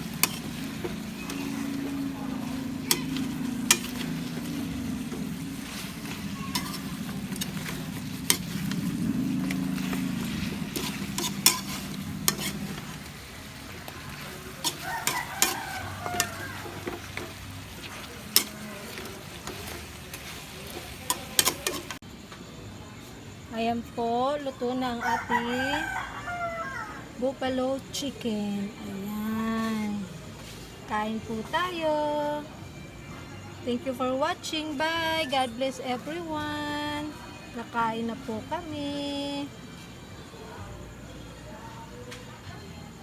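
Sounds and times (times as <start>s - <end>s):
chicken sizzling in a pan: 0.0s - 22.0s
steady low hum: 0.0s - 22.0s
utensil scraping a pan: 0.0s - 22.0s.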